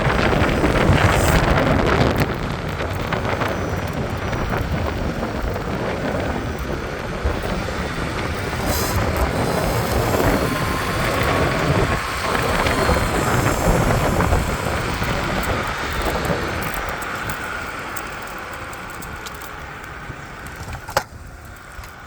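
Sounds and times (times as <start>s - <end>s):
rough crunching clicking noise: 0.0s - 22.0s
motor running: 7.2s - 16.4s.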